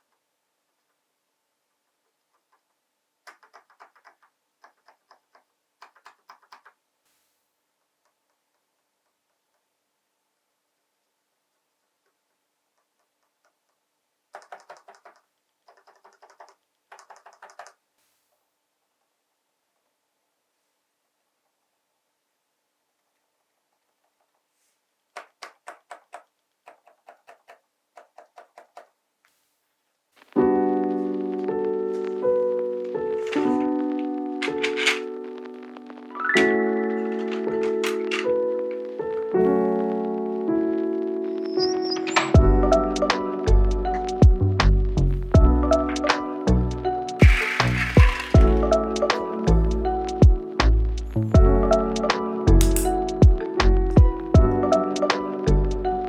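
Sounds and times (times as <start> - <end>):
small plastic parts clicking: 2.1 - 6.8, 12.0 - 17.8, 25.1 - 28.9, 33.2 - 33.8, 34.4 - 35.2, 37.1 - 38.3, 47.2 - 48.4
piano music: 30.4 - 56.0
keyboard stabilizer clicks: 34.4 - 35.1, 37.1 - 38.3.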